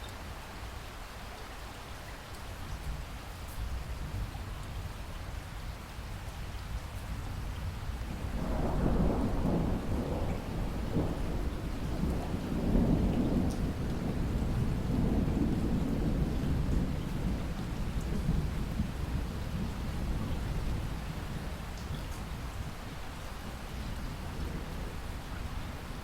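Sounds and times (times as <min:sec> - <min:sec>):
heavy rain: 0:00.0 - 0:26.0
rolling thunder: 0:08.1 - 0:22.7, 0:23.8 - 0:26.0.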